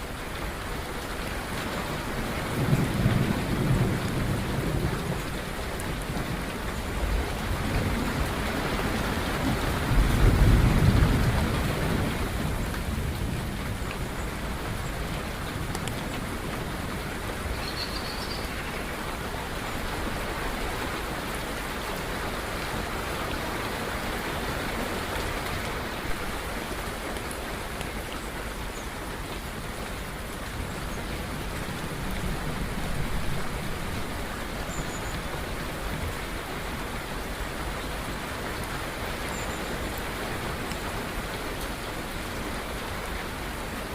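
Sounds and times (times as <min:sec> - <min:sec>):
steady rain: 0:00.0 - 0:43.9
faint bird chirps: 0:17.5 - 0:18.6.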